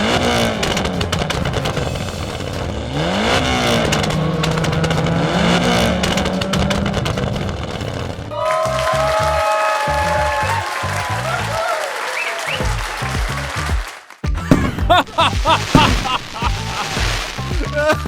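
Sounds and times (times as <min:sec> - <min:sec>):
engine running and revving: 0:00.0 - 0:08.3.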